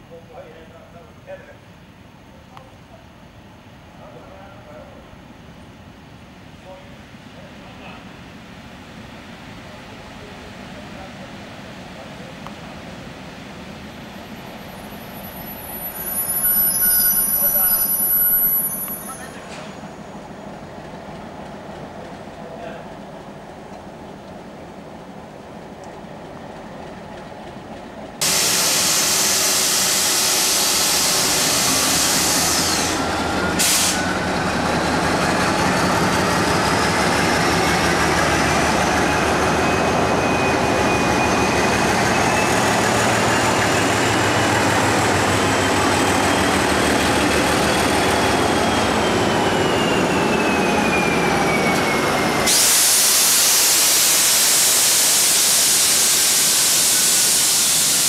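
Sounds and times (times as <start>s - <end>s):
train rumbling past: 0.0s - 58.0s
train whining tone: 14.2s - 22.8s, 28.2s - 58.0s
even rushing hiss: 28.2s - 34.2s.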